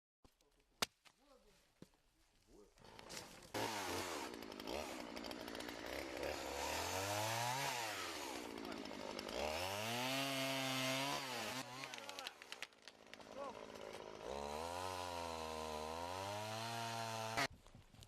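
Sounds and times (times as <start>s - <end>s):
engine revving: 3.6s - 12.2s.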